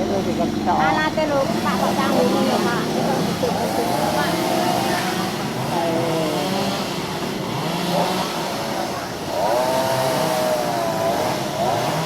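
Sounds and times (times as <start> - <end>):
small petrol engine running: 0.0 - 12.0.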